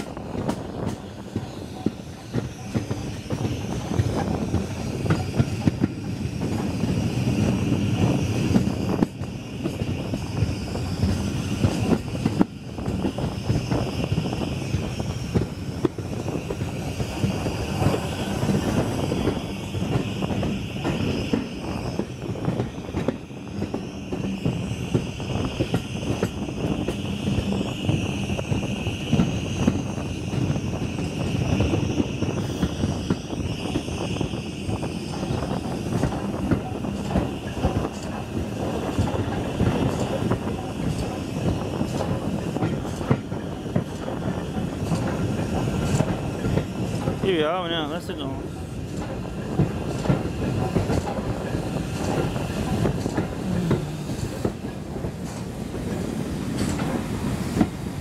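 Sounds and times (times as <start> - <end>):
train wheels rumbling and rattling: 0.0 - 58.0.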